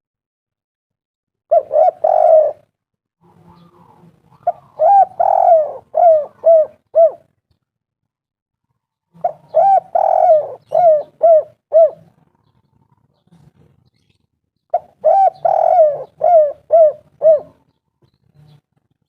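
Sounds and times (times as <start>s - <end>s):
dove cooing: 1.5s - 7.4s, 9.1s - 13.1s, 14.7s - 17.8s.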